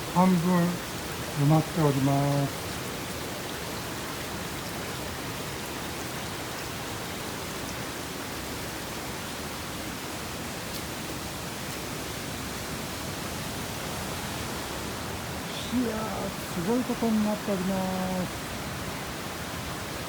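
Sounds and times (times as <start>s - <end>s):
mountain stream rushing: 0.0s - 20.0s.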